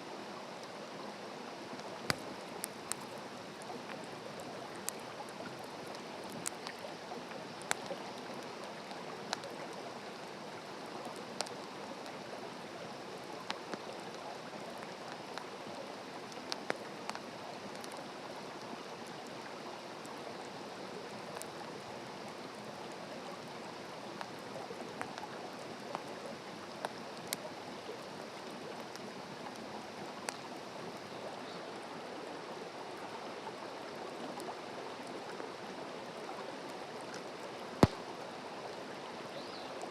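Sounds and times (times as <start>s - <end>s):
campfire crackling and popping: 1.8s - 9.8s, 11.1s - 12.2s, 37.8s - 38.2s.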